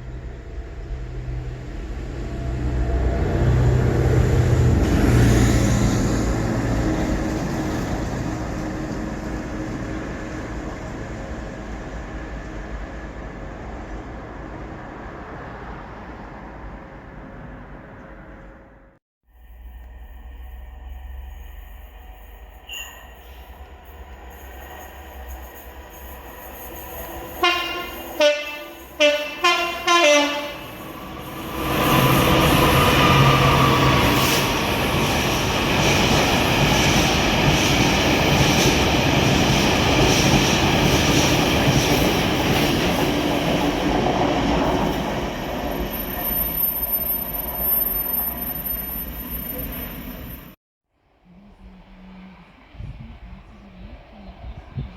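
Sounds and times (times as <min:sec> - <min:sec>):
train wheels rushing on rails: 0:00.0 - 0:18.5, 0:20.4 - 0:50.6
thin high squeal: 0:20.9 - 0:23.6, 0:46.0 - 0:50.4
train horn blasts: 0:27.4 - 0:33.7.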